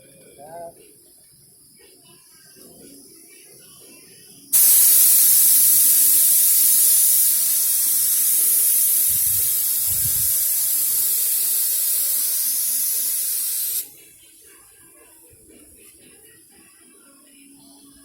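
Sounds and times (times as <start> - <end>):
paint spray gun hissing: 4.5 - 14.0.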